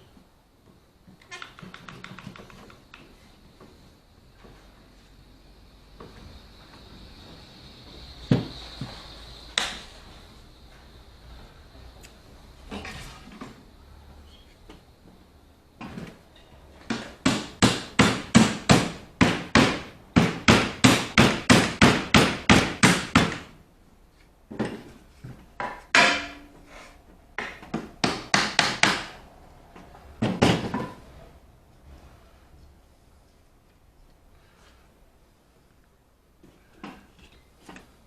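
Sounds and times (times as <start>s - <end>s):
hammer striking: 25.7s - 26.6s.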